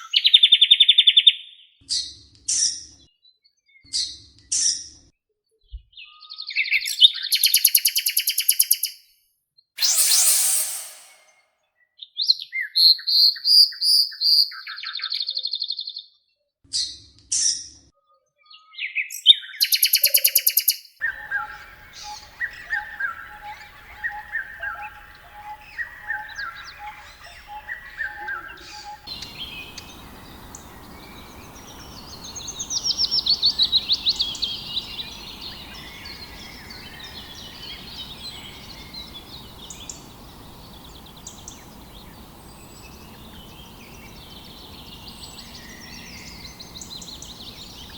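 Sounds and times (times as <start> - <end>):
bird trill: 7.4 - 8.9, 9.8 - 11.3, 19.6 - 47.9
high bird chirps: 7.4 - 8.9, 9.8 - 11.4, 19.6 - 47.9
descending bird calls: 9.8 - 11.3, 19.7 - 47.9
background hiss: 21.0 - 47.9.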